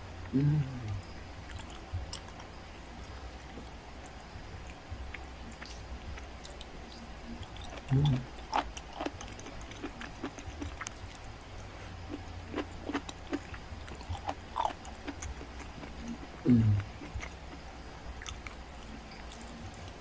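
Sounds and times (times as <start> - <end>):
person chewing: 0.8 - 3.4, 7.4 - 20.0.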